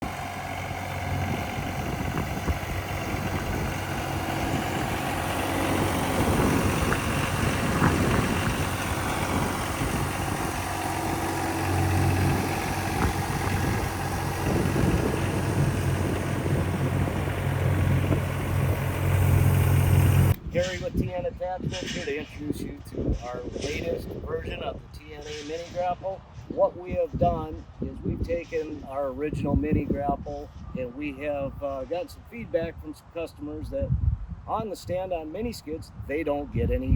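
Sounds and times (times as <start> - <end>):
skid steer engine drone: 0.0 - 21.0.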